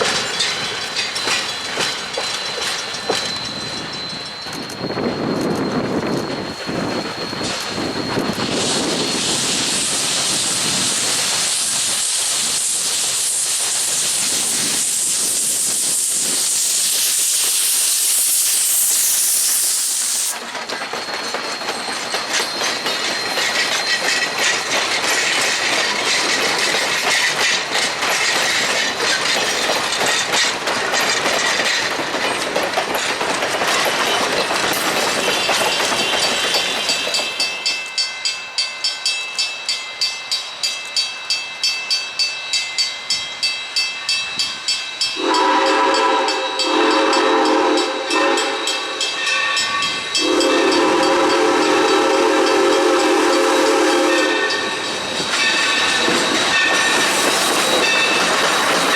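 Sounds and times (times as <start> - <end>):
steam hissing from locomotive: 0.0 - 58.9
train clattering past: 0.0 - 58.9
faint high ringing tone: 1.0 - 9.2.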